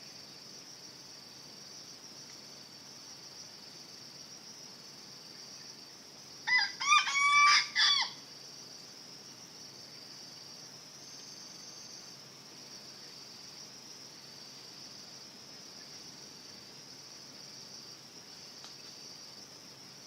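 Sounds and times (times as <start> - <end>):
insects chirring: 0.0 - 20.0
junglefowl crowing: 6.5 - 8.2.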